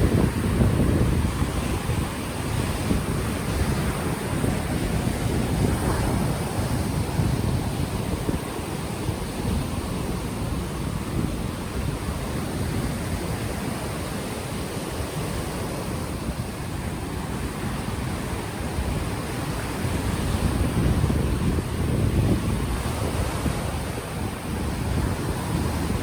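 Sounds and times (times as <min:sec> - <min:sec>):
ocean waves washing ashore: 0:00.0 - 0:26.0
wind buffeting microphone: 0:00.0 - 0:26.0.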